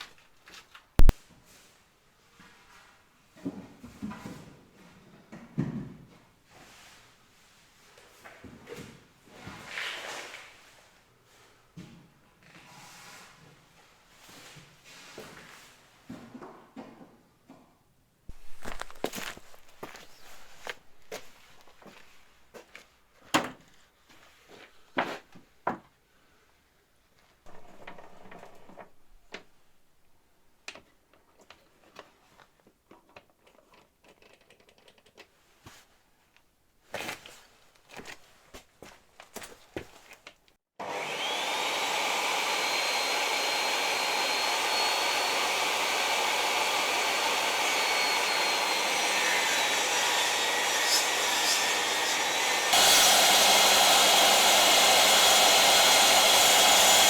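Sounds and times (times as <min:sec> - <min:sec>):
electric motor machine running: 0:40.8 - 0:57.0.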